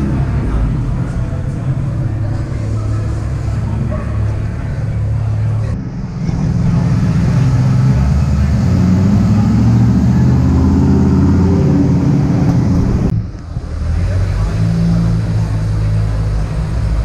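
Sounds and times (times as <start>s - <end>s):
car engine driving slowly: 0.0s - 17.0s.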